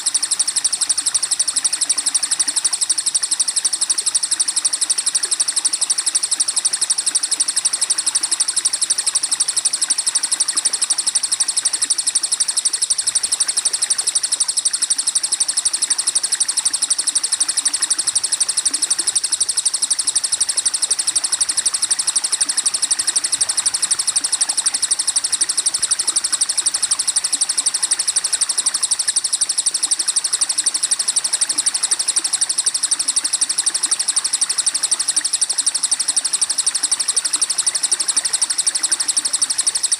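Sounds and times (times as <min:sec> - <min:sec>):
high-pitched pulsing trill: 0:17.1 - 0:30.2.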